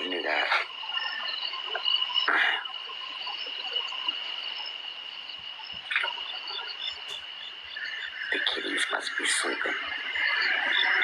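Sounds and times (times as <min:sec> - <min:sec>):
frogs calling: 0:00.0 - 0:11.0.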